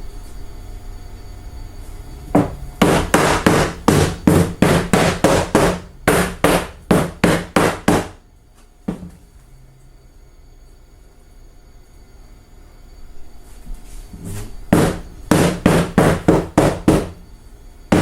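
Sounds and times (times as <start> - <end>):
rubber mallet striking wood: 2.4 - 8.2, 8.9 - 9.2, 14.7 - 17.2.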